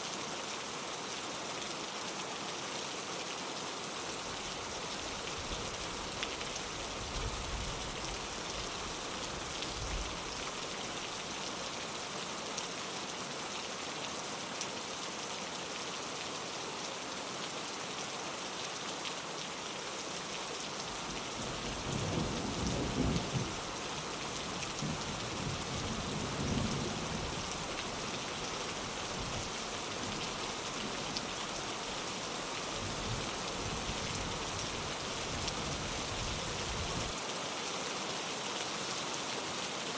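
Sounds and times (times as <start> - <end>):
rain on a window: 0.0 - 39.9
thunder rumbling: 21.0 - 23.7.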